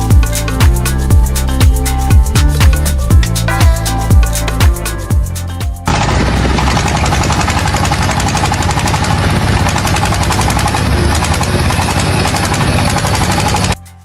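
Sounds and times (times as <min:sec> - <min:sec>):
machine mechanical clatter: 0:05.9 - 0:13.8
machine whine: 0:05.9 - 0:13.8.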